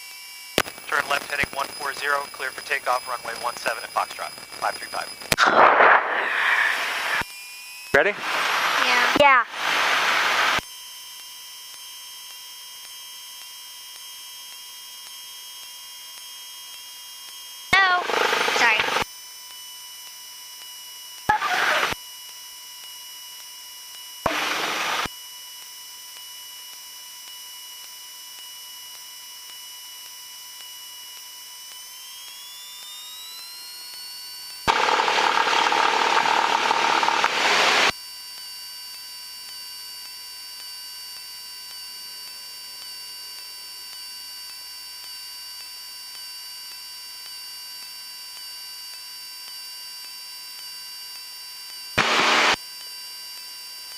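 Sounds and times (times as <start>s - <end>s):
bursts of hiss: 5.4s - 7.2s.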